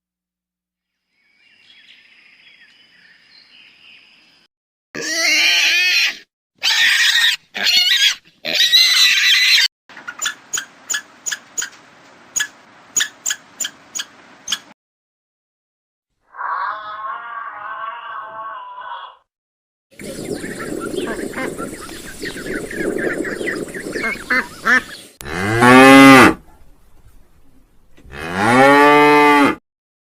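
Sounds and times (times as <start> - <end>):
faint high animal sound: 16.2 - 19.3
high-pitched wavering animal calls: 16.3 - 19.2.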